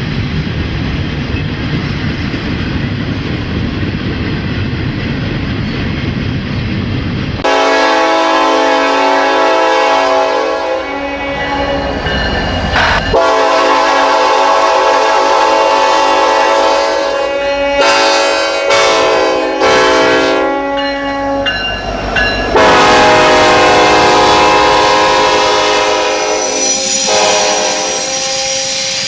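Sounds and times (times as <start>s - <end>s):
locomotive air horn blasts: 7.4s - 12.0s, 12.8s - 21.7s, 22.5s - 28.7s.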